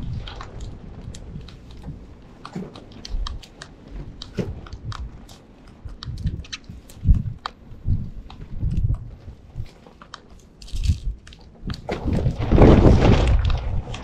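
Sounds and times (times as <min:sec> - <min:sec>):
dull low thumps: 0:00.0 - 0:09.8.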